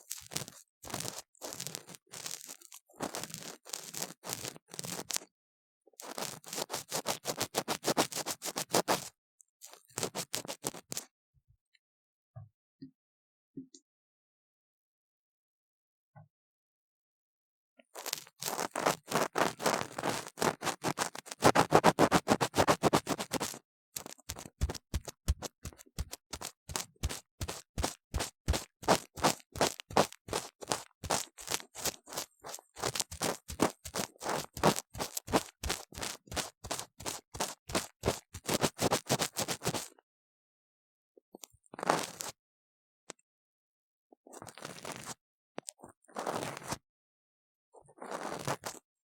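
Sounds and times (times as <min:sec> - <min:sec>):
ear pick scraping: 0:18.4 - 0:23.5, 0:24.3 - 0:39.8.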